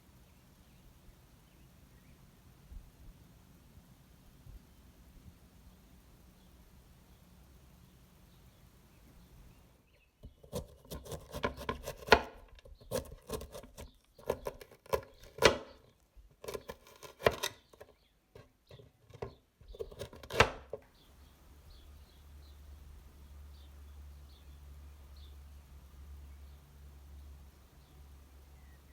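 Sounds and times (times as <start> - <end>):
knife chopping vegetables: 10.2 - 20.8.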